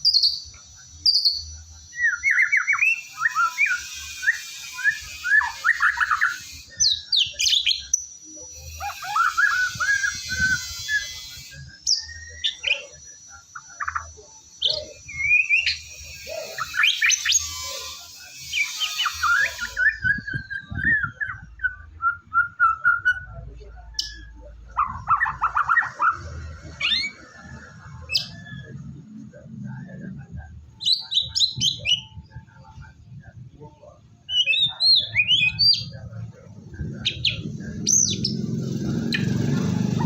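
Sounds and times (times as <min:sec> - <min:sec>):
bird harsh rasping chatter: 0:00.0 - 0:21.6, 0:24.0 - 0:30.1, 0:34.3 - 0:40.0
bird singing whistles and trills: 0:00.0 - 0:29.0, 0:30.8 - 0:40.0.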